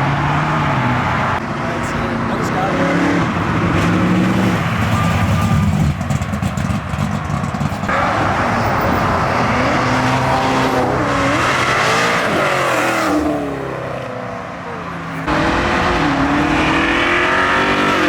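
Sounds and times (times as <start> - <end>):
car engine revving and accelerating: 0.0 - 18.0.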